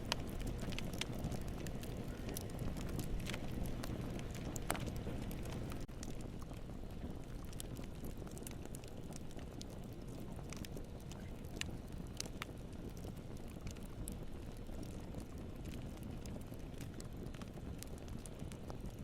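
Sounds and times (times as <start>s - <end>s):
wood popping and snapping: 0.0s - 6.6s
low rumble of flames: 0.0s - 19.0s.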